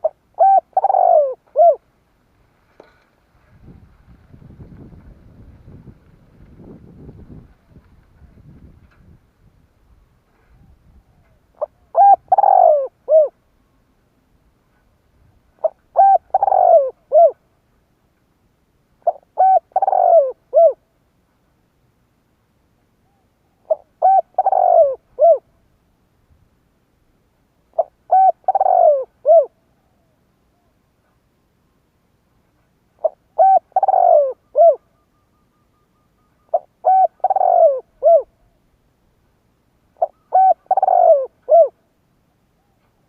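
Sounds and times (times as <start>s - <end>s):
dove cooing: 0.0s - 1.9s, 10.5s - 13.4s, 15.5s - 17.5s, 19.0s - 20.8s, 23.0s - 25.5s, 27.7s - 30.8s, 33.0s - 38.6s, 40.0s - 41.9s.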